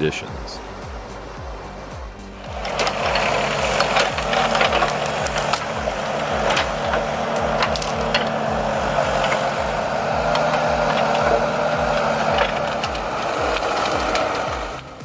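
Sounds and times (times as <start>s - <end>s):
pulsing background beat: 0.0s - 15.0s
sharp clicks and knocks: 0.0s - 15.0s.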